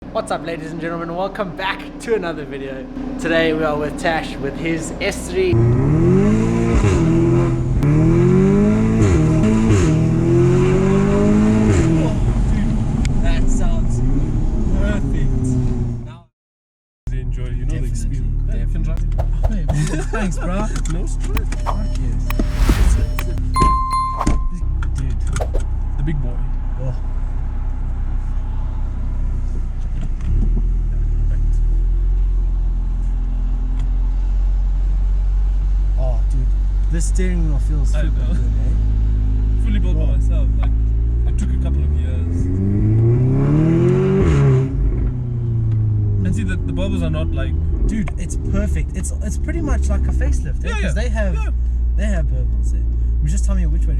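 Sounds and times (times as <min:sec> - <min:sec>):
car engine low drone: 0:00.0 - 0:16.0, 0:19.9 - 0:25.1, 0:25.7 - 0:53.9
car engine revving: 0:01.3 - 0:12.9, 0:42.4 - 0:46.4.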